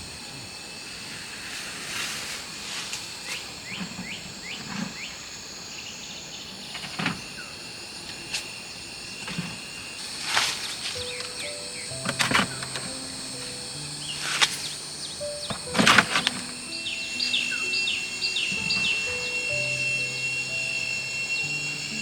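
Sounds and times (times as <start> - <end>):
insects trilling: 0.0 - 22.0
bird chirping: 10.9 - 22.0.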